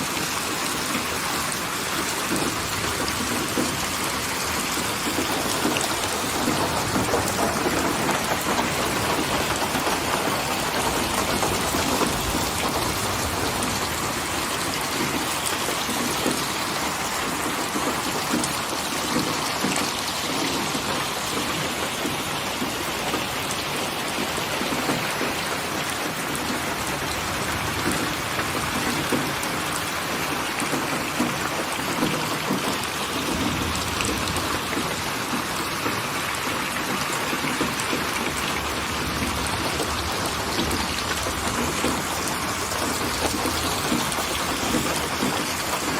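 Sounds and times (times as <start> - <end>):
rain falling: 0.0 - 45.9.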